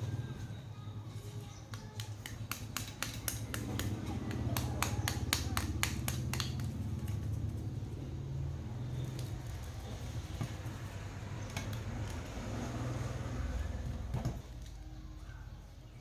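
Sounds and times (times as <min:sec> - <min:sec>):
sharp clicks and ticks: 0:01.7 - 0:07.6.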